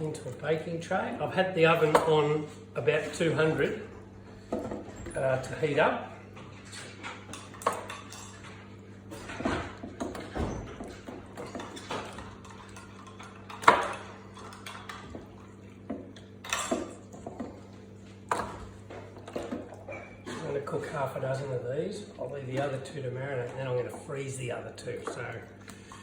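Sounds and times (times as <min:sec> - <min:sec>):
utensils clinking: 0:06.4 - 0:26.0.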